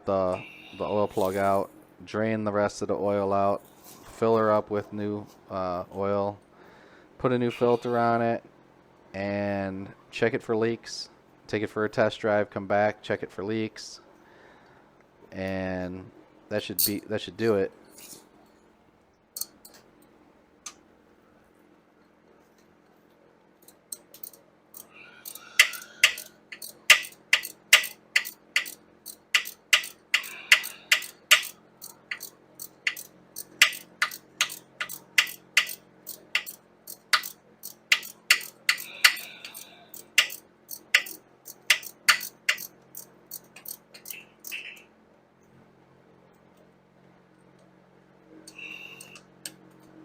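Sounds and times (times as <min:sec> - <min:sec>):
ratchet wrench clicking: 0:23.6 - 0:44.6.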